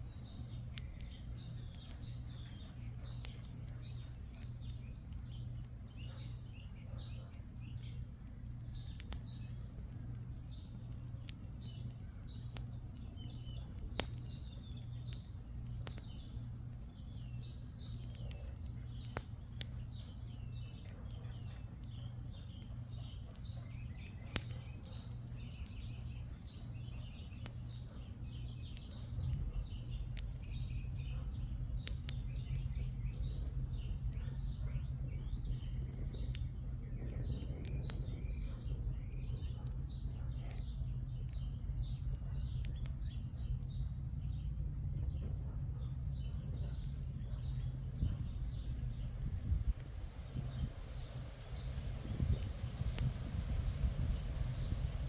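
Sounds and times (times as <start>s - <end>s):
campfire crackling pops: 0.0s - 45.4s, 46.0s - 55.0s
birds chirping: 0.0s - 55.0s
low wind rumble: 29.2s - 55.0s.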